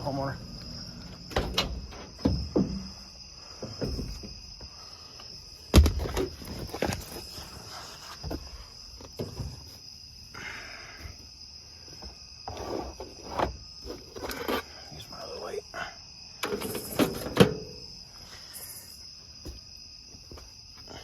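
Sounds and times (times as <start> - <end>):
crickets chirping: 0.0 - 21.0
handling knocks: 1.2 - 4.5.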